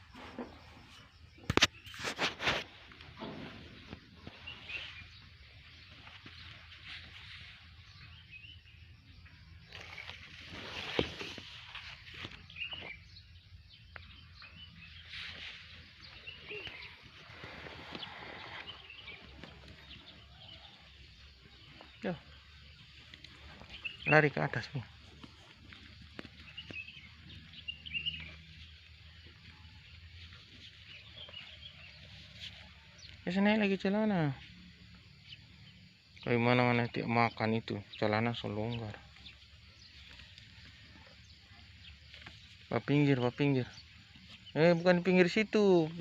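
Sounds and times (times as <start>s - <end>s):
birds chirping: 0.0s - 46.0s
high bird chirps: 12.2s - 25.3s, 26.0s - 28.5s.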